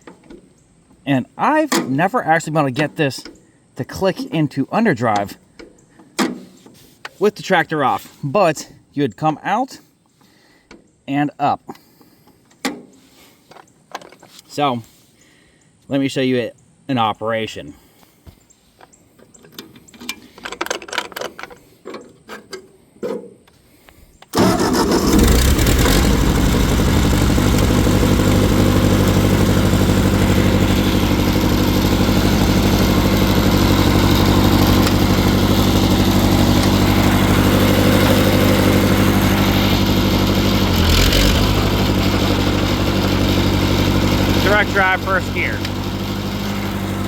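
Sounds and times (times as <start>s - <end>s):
tractor engine starting and idling: 24.3s - 47.0s.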